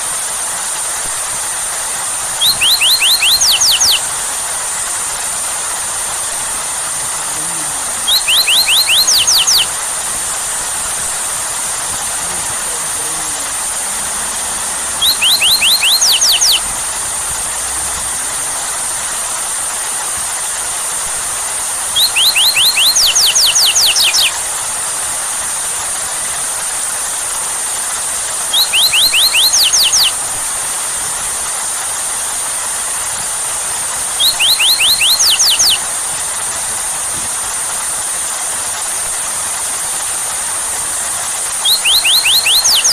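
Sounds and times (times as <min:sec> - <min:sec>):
rain hiss: 0:00.0 - 0:42.9
bird whistling sweeping notes: 0:02.4 - 0:04.1, 0:05.8 - 0:18.1, 0:21.9 - 0:24.4, 0:28.5 - 0:30.2, 0:34.0 - 0:35.9, 0:41.5 - 0:42.9.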